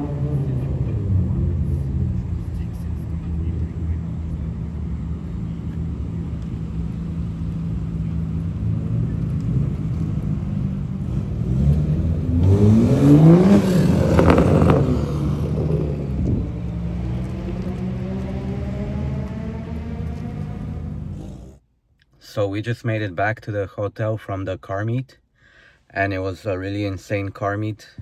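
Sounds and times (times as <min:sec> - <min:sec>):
car engine revving: 0:00.0 - 0:21.6.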